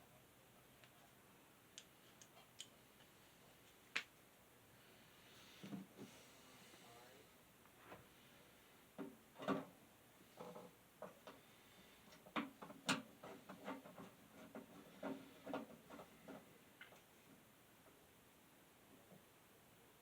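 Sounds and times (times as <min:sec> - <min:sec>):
fan housing clicks and knocks: 0:12.2 - 0:17.0.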